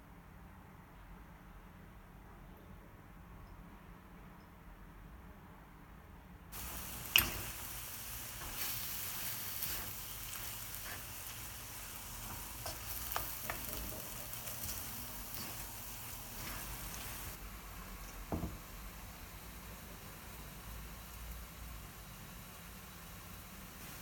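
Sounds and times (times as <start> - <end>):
oil spattering crackles: 6.6 - 17.4
food sizzling in frying pan: 6.6 - 24.0.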